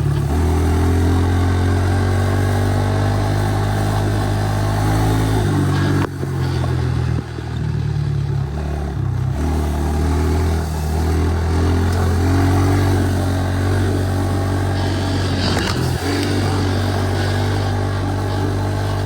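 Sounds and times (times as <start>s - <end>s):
pit bike engine running: 0.0s - 19.0s.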